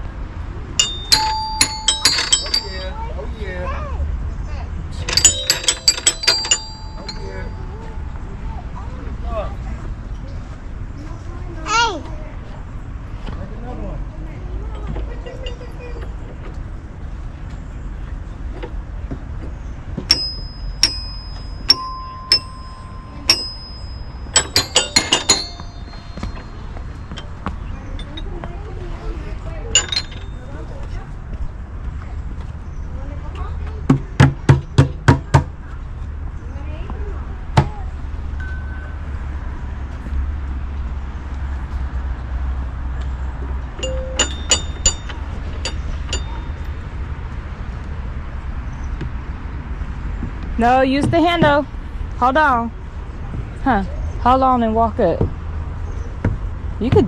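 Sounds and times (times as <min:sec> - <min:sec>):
sharp metallic clinks: 0:00.8 - 0:03.1, 0:05.0 - 0:08.0, 0:20.1 - 0:28.6, 0:29.7 - 0:30.6, 0:43.8 - 0:46.8
small metal bell dinging: 0:00.8 - 0:03.1, 0:05.0 - 0:08.0, 0:20.1 - 0:28.4, 0:29.7 - 0:30.6, 0:38.4 - 0:39.3, 0:43.8 - 0:46.8.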